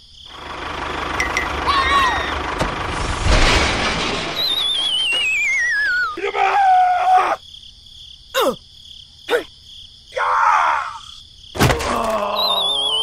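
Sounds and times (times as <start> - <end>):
falling warbling whistle: 4.2 - 6.2
wavering cartoon groan: 6.1 - 7.4, 8.4 - 8.6, 11.7 - 13.0.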